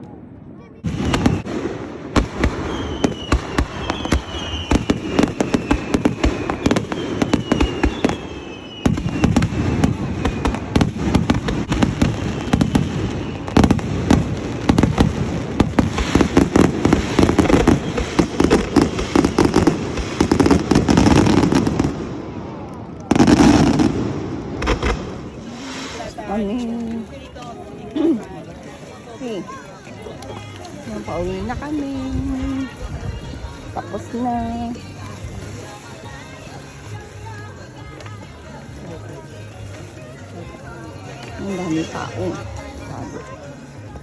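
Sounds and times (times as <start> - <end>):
fireworks bangs and crackling: 0.0 - 44.0
falling firework whistles: 0.8 - 14.8, 15.8 - 22.0.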